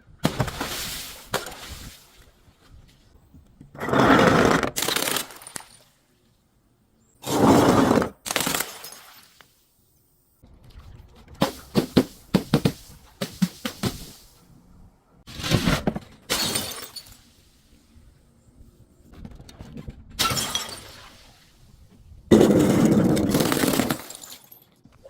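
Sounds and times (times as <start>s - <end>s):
broken glass crunching: 16.3s - 17.2s, 22.3s - 24.8s
glass bottles shattering: 16.3s - 17.3s, 20.2s - 21.2s, 22.3s - 24.8s.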